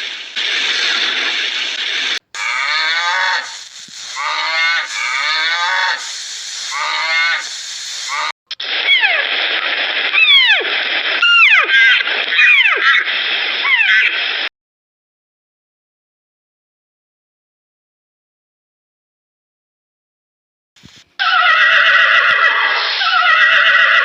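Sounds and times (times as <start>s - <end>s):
sharp high falling calls: 0.0s - 9.3s
hiss-like noise: 0.0s - 11.2s
falling animal calls: 0.4s - 9.4s, 10.2s - 14.2s, 21.2s - 24.0s.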